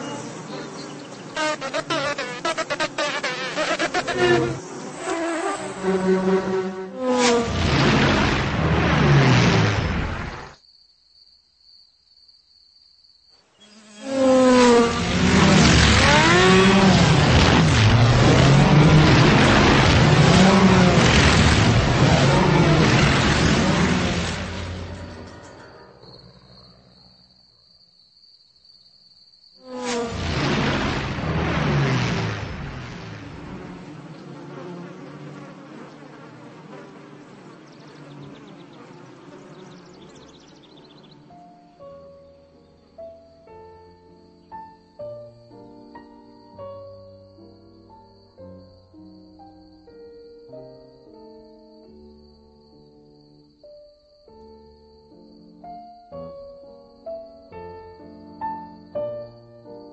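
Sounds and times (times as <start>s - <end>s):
racing car engine revving: 0.0s - 10.4s, 14.0s - 25.6s, 30.6s - 40.4s
insect wing buzz: 0.0s - 43.2s.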